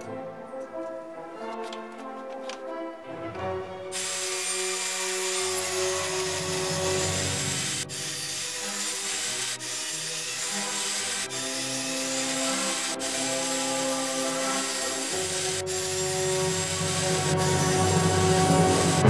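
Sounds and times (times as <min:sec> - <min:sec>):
background music: 0:00.0 - 0:19.0
table saw cutting wood: 0:03.9 - 0:19.0.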